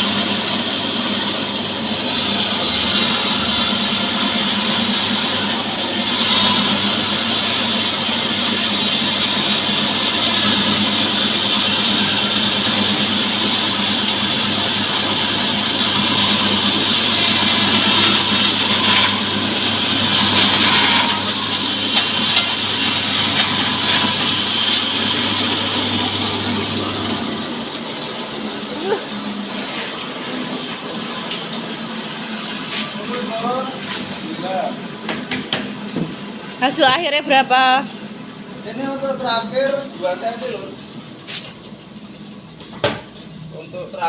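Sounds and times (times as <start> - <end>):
saw cutting through log: 0.0 - 30.1
sawmill petrol engine running: 0.0 - 44.0.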